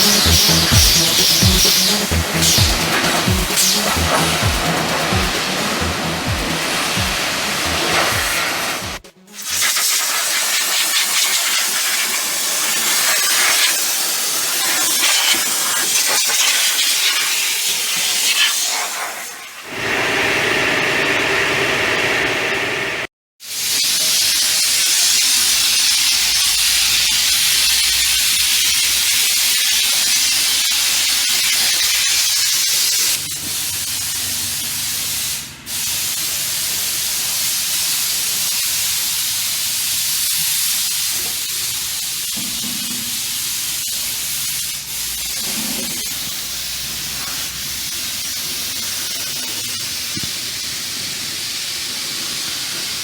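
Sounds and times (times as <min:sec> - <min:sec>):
water jet spraying: 0:00.0 - 0:19.8.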